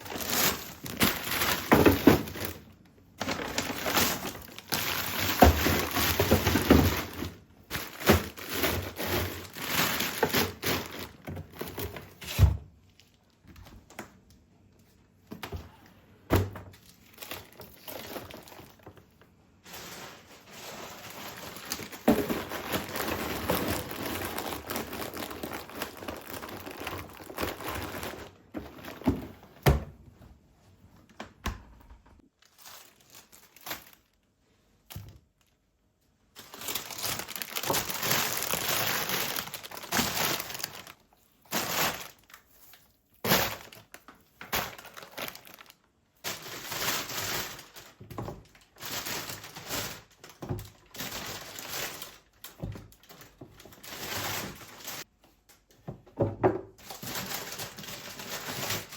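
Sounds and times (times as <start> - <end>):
rustling and scraping: 17.4 - 29.6.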